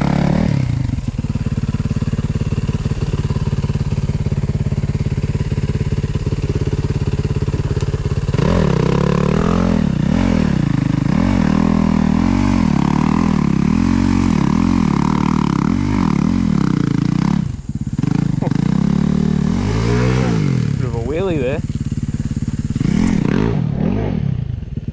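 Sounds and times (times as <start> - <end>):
dirt bike engine revving: 0.0 - 24.9.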